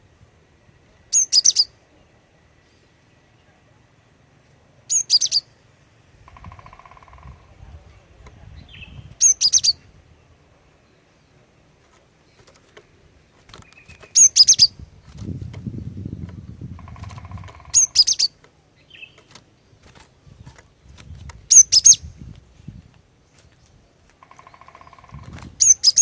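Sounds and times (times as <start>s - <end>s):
bird calling high sharp notes: 6.3s - 7.5s, 16.8s - 18.4s, 24.2s - 26.0s.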